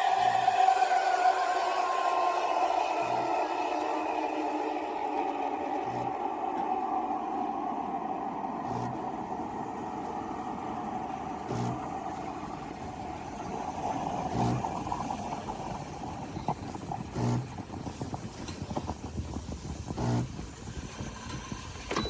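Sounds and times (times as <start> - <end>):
espresso machine humming and hissing: 0.0 - 21.7.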